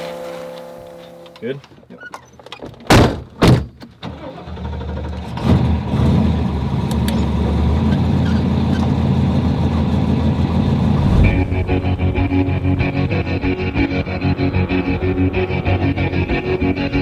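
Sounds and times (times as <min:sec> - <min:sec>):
truck engine starting and running: 0:04.2 - 0:17.0.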